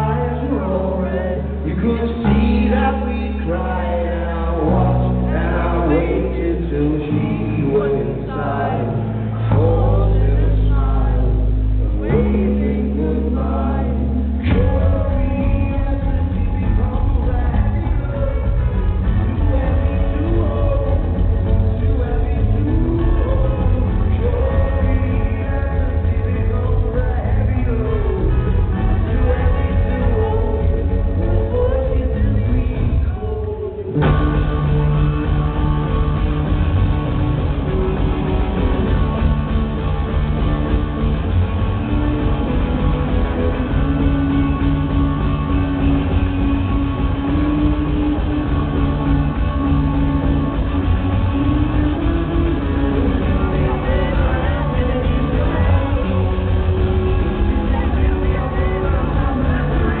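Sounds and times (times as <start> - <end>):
rock band playing live: 0.0 - 60.0.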